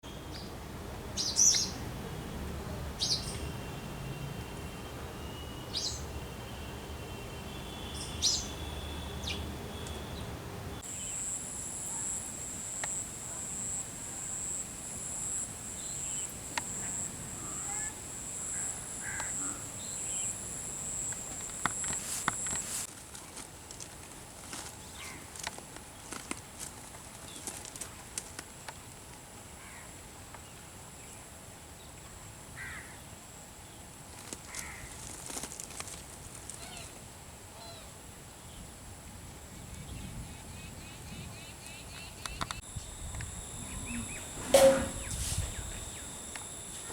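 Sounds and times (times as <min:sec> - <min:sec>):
bird calls: 0:07.9 - 0:22.8, 0:40.6 - 0:46.9
high-pitched pulsing drone: 0:10.9 - 0:22.6, 0:42.6 - 0:46.9
crow cawing: 0:16.8 - 0:19.8, 0:32.6 - 0:33.0.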